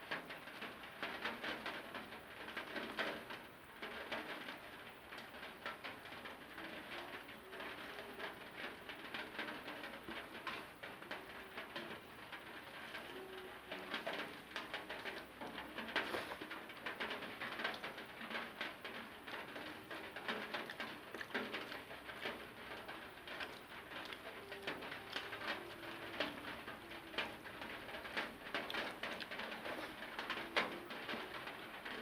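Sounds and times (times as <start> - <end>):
chewing and mouth sounds: 20.6 - 21.8.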